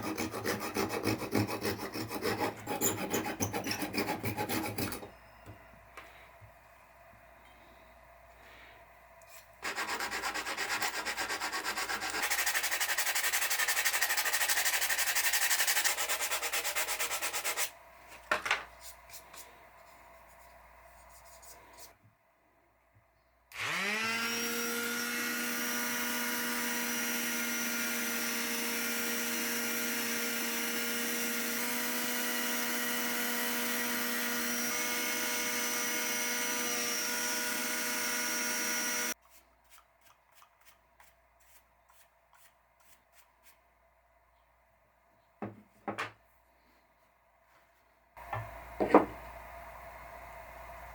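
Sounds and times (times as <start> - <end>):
sanding scratching: 0.0 - 5.0, 9.6 - 17.7
power tool motor whine: 23.6 - 39.2.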